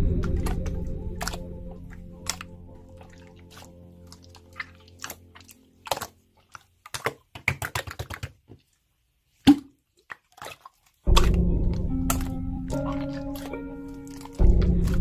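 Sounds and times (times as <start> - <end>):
loud music: 0.0 - 2.4.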